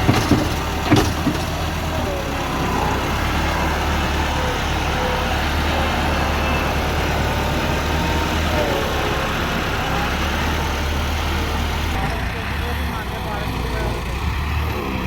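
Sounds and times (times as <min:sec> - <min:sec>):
heavy machinery diesel engine: 0:00.0 - 0:15.0.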